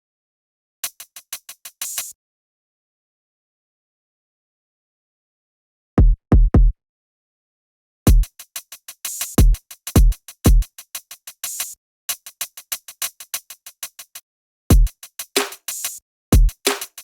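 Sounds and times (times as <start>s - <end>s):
deep kick drums: 6.0s - 6.8s
fast ticking hi-hats: 14.8s - 17.0s
noisy snare-like hits: 15.4s - 15.9s, 16.7s - 17.0s.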